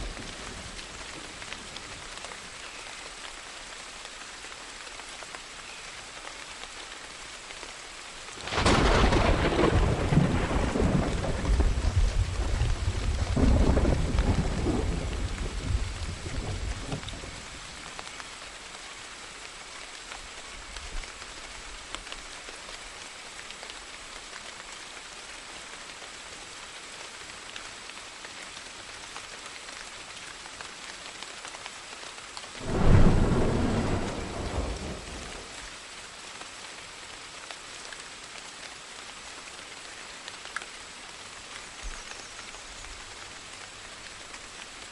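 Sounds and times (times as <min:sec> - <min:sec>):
steady rain: 0:00.0 - 0:44.9
thunderclaps: 0:08.4 - 0:17.3, 0:32.6 - 0:35.6
deep thunder rumble: 0:08.4 - 0:17.4, 0:32.6 - 0:35.5.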